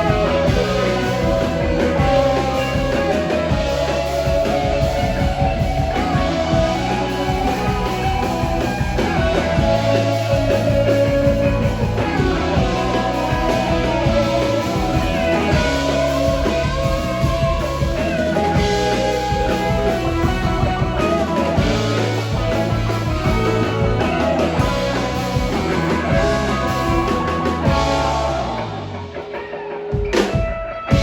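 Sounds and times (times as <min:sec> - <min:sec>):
bass guitar: 0:00.0 - 0:31.0
drum kit: 0:00.0 - 0:31.0
guitar lines: 0:00.0 - 0:31.0.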